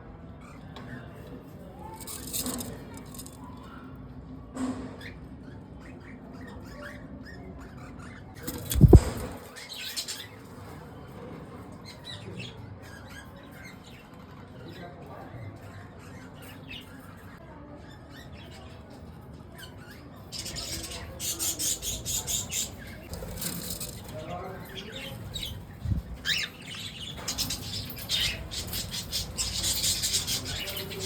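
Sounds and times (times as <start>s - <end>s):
rapid wing flapping: 8.5s - 9.4s
budgerigars chirping: 20.4s - 31.0s.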